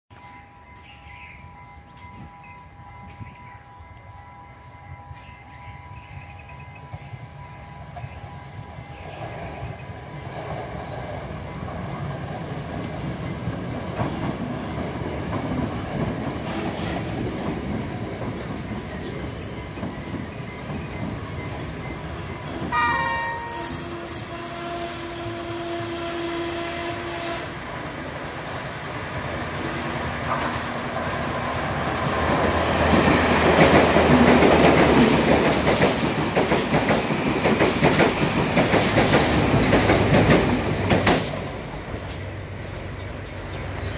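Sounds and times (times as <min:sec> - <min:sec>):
diesel train engine drone: 0:00.1 - 0:43.9
train horn blast: 0:22.7 - 0:27.7.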